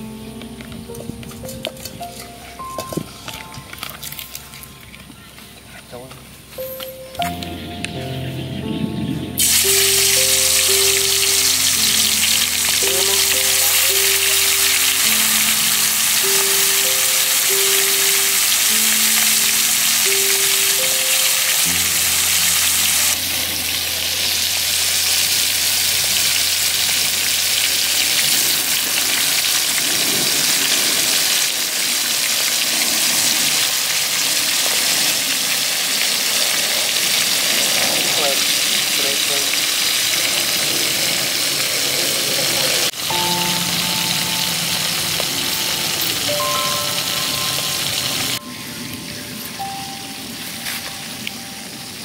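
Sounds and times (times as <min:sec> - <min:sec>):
meat deep-frying in oil: 0:09.4 - 0:48.4.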